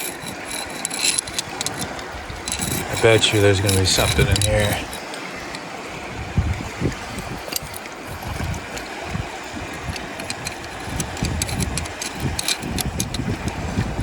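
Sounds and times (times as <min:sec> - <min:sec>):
small stones clicking: 0:00.0 - 0:05.0
water sloshing and gurgling: 0:00.0 - 0:14.0.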